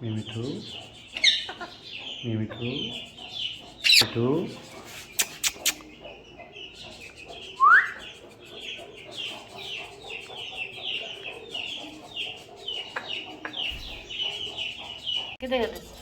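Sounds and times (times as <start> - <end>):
birds chirping: 0.0 - 16.0
loud rising bird whistle: 7.6 - 8.0.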